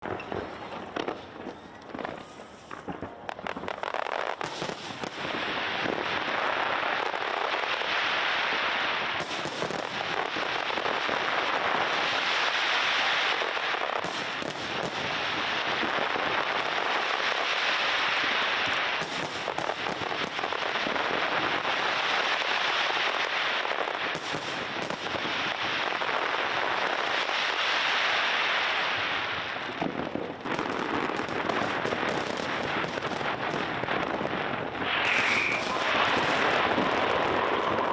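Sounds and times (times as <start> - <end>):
fireworks crackling: 0.0 - 37.9
fireworks bang: 24.0 - 37.9.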